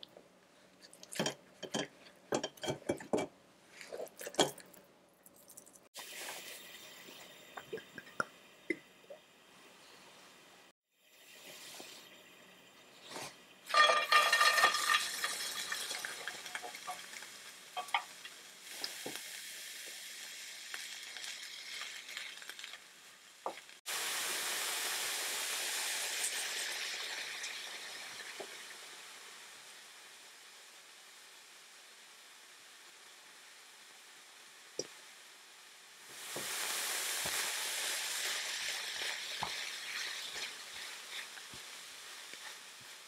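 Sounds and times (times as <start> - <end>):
cabbage sizzling in oil: 6.0 - 7.3, 12.9 - 43.0
spatula scraping and tapping pan: 13.7 - 18.2, 38.7 - 41.7.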